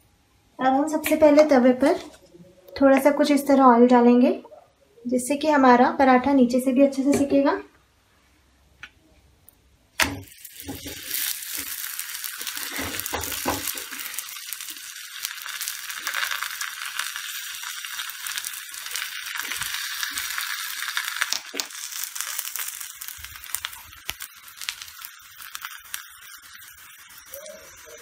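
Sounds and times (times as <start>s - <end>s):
flatbread sizzling in oil: 10.0s - 28.0s.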